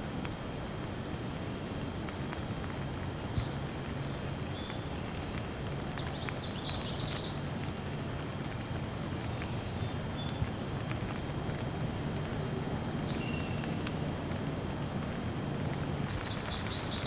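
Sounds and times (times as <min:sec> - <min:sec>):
rain with ticking drops: 0:00.0 - 0:17.0
small bird chirping: 0:03.2 - 0:07.5, 0:16.1 - 0:17.0.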